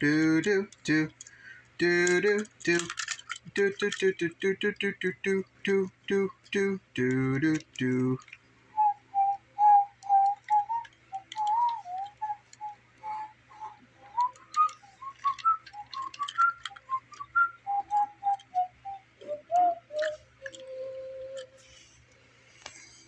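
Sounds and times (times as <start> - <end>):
person vocalizing a wordless tune: 0.0 - 8.4, 9.0 - 22.0
toy trains clicking: 0.0 - 23.0.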